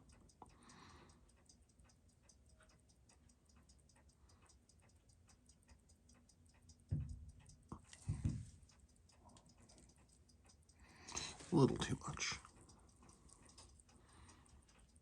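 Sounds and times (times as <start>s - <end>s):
watch ticking: 0.0s - 15.0s
low thump: 6.9s - 7.2s, 8.0s - 8.5s.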